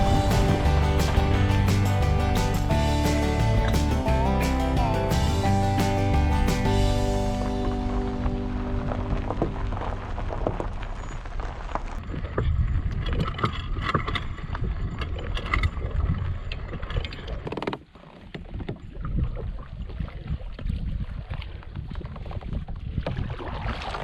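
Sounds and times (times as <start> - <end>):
kayak moving on water: 0.0 - 24.0
wind buffeting microphone: 7.4 - 17.4, 18.4 - 24.0.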